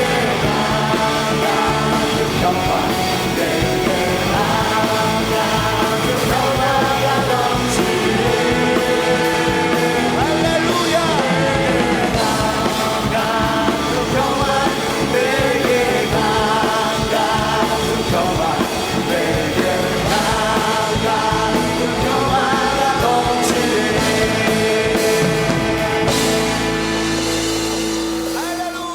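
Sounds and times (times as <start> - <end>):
person singing praise song: 0.0 - 26.4
rock worship band playing: 0.0 - 28.9.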